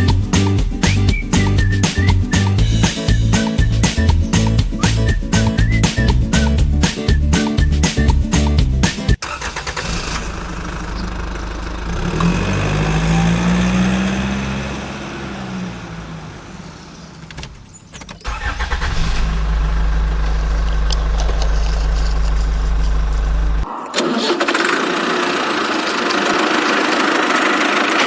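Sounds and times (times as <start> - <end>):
engine revving and idling: 9.3 - 17.2, 18.3 - 23.7, 24.4 - 28.0.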